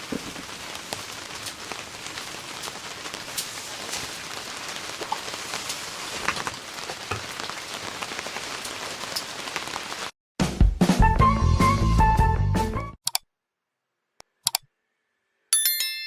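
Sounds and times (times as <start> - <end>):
rain falling: 0.0 - 10.2
music: 10.4 - 13.0.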